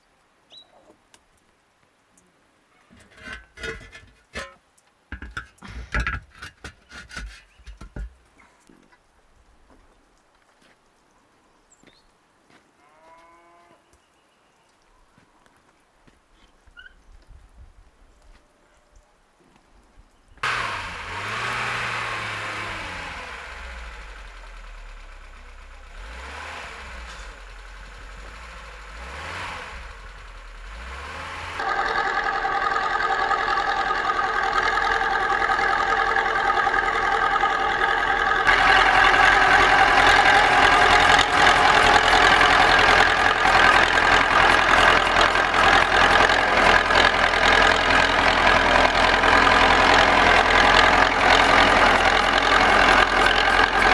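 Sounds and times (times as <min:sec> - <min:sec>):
vehicle engine running: 0:03.0 - 0:04.2, 0:20.4 - 0:53.9.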